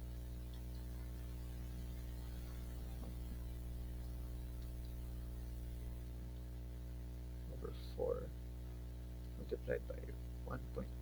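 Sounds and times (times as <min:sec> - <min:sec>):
faint ticks: 0:00.0 - 0:06.5
electrical mains hum: 0:00.0 - 0:11.0.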